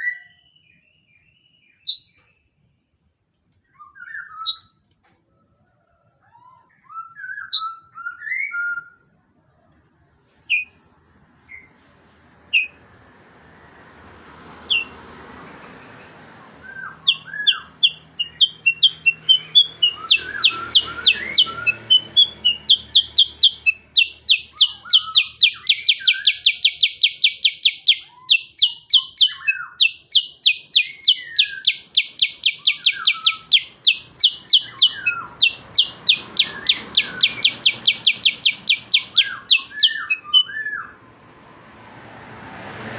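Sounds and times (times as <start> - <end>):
bird whistled calls: 0.0 - 2.2, 3.7 - 4.7, 6.4 - 9.0, 14.7 - 14.9, 16.6 - 41.0
bird lower gliding calls: 14.7 - 15.0, 16.4 - 41.0
bird rapid rolling high notes: 16.6 - 28.0, 30.8 - 41.0.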